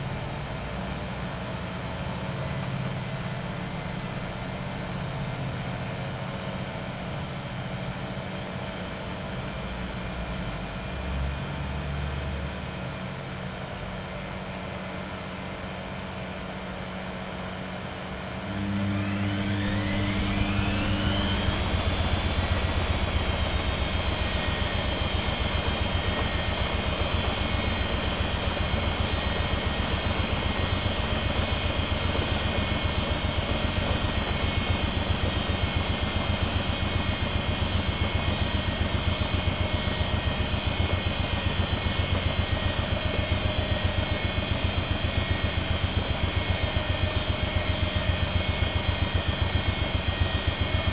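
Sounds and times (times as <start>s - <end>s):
washing machine spinning: 15.6s - 50.9s.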